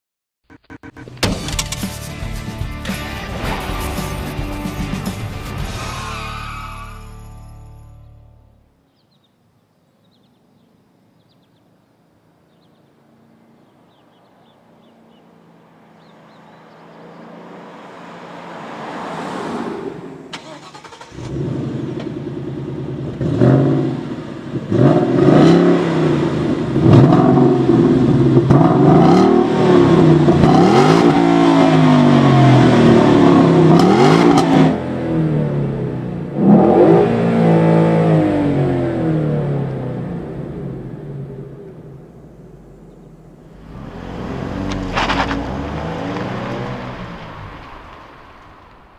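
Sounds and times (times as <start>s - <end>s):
car engine revving: 0.4s - 7.2s, 16.0s - 48.9s
faint rushing noise: 41.4s - 48.9s.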